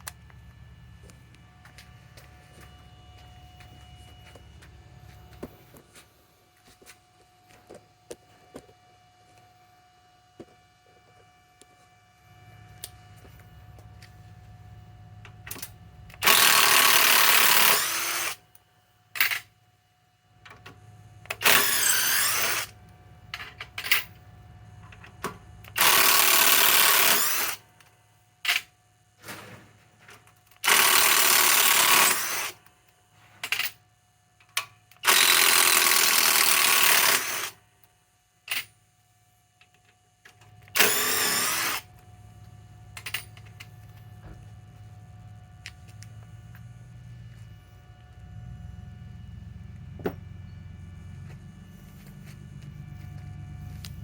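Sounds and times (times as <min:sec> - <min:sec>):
impact driver running: 0:15.5 - 0:18.4, 0:21.3 - 0:22.8, 0:25.6 - 0:27.6, 0:30.6 - 0:32.6, 0:35.0 - 0:37.6, 0:40.7 - 0:41.9.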